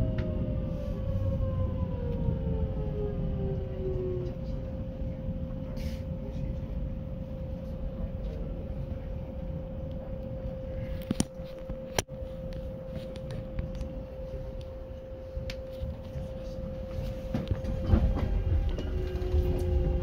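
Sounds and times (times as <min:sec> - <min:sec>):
train wheels rumbling on rail: 0:12.9 - 0:20.0.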